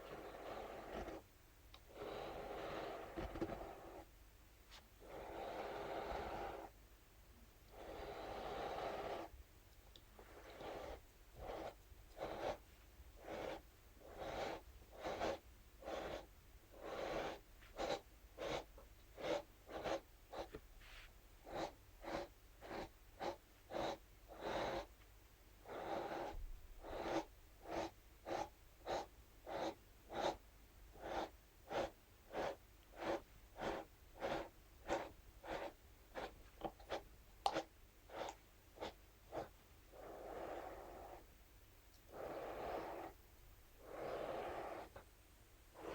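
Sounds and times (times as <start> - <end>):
brush scratching a surface: 31.0 - 40.3.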